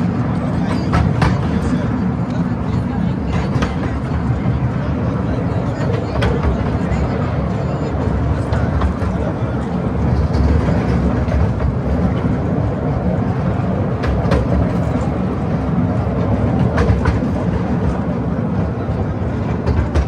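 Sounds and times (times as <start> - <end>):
wheels clicking over rail joints: 8.4 - 20.0.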